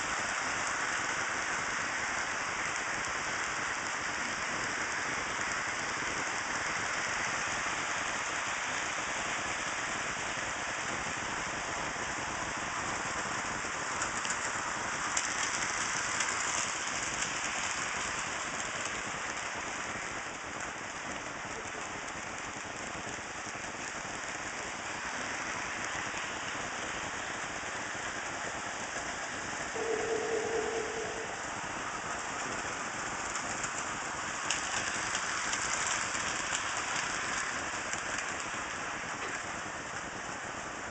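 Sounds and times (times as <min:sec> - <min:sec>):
model train motors and wheels: 0:00.0 - 0:40.9
short steady tone: 0:29.8 - 0:31.6.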